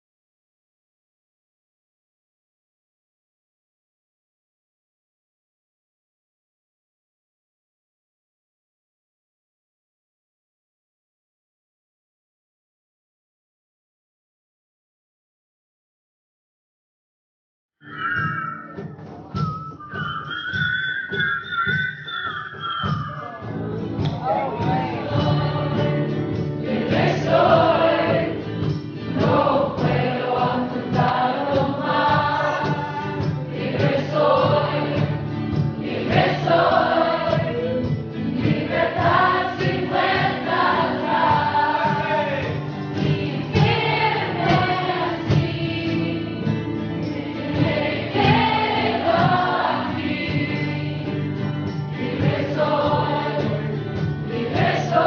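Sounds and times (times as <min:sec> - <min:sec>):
group of voices singing: 0:22.9 - 0:55.0.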